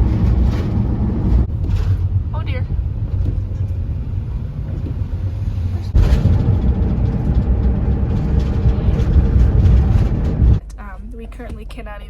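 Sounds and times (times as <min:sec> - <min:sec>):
van engine and road rumble: 0:00.0 - 0:12.0.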